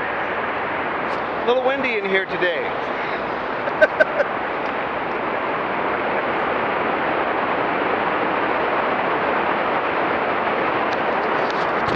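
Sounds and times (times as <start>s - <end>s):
wind noise on microphone: 0.0s - 11.9s.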